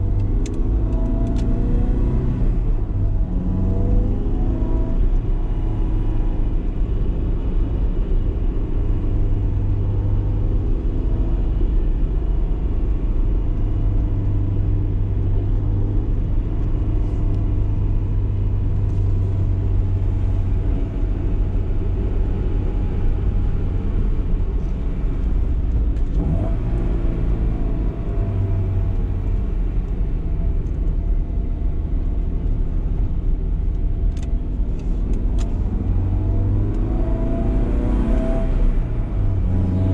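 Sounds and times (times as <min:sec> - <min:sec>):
car engine running: 0:15.2 - 0:39.9.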